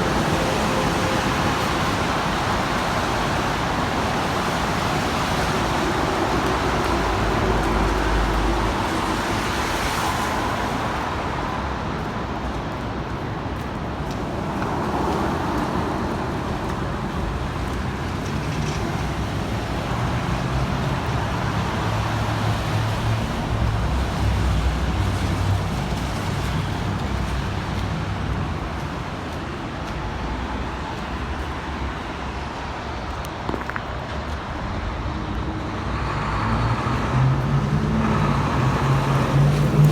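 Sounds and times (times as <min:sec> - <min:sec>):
cars passing: 0:00.0 - 0:39.9
steady traffic rumble: 0:00.0 - 0:39.9.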